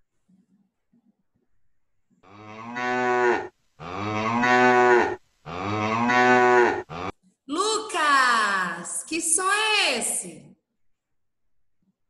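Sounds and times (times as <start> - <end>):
cow mooing: 2.2 - 7.2.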